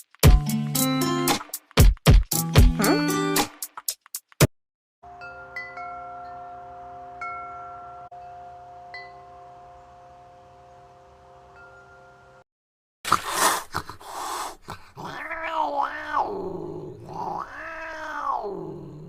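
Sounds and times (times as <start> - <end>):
cat meowing: 15.0 - 18.8.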